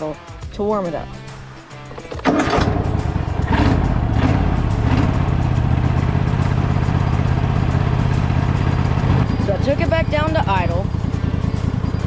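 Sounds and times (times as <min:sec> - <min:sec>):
riding mower engine running: 0:01.2 - 0:12.0.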